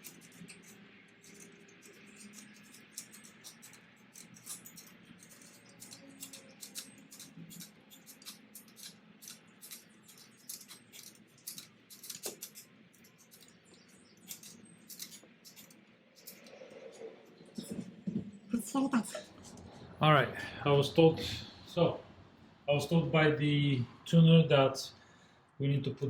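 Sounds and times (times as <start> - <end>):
hand tool clicking: 0.0 - 16.6.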